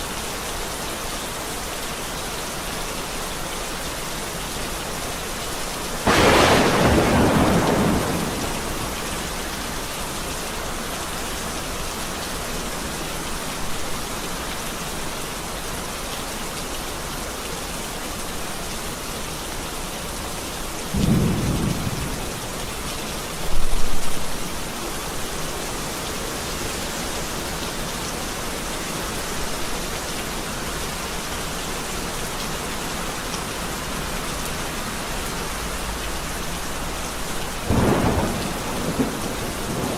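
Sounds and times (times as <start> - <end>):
steady rain: 0.0 - 39.9
thunderclap: 6.1 - 9.5, 37.7 - 39.9
low thunder rumbles: 6.1 - 9.9, 21.0 - 22.8, 37.7 - 39.9.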